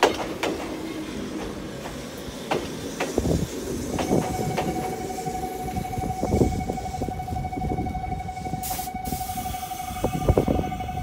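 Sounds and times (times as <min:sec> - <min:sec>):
train clunks: 0:00.0 - 0:11.0
air hiss from train: 0:00.6 - 0:05.4, 0:08.4 - 0:11.0.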